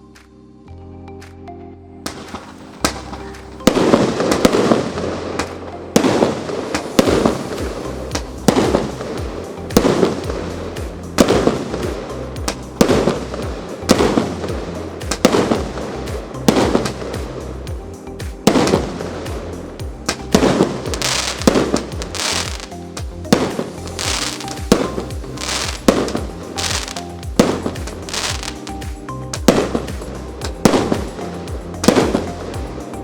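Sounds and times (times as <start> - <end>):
fireworks shots banging: 20.1 - 22.8, 23.4 - 28.7.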